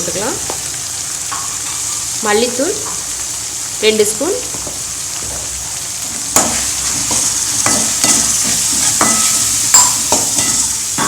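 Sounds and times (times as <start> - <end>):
masala sizzling in hot oil: 0.0 - 11.0
metal spoon knocking on pan: 4.5 - 5.6, 6.4 - 11.0.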